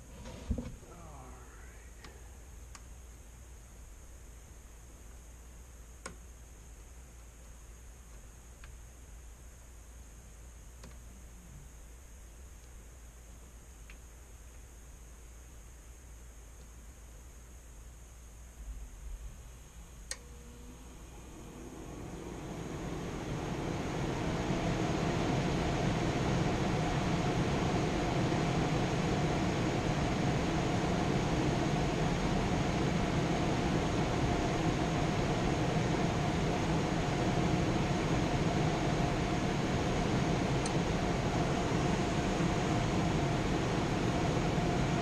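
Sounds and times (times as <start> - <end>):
blower fan running: 19.4 - 45.0.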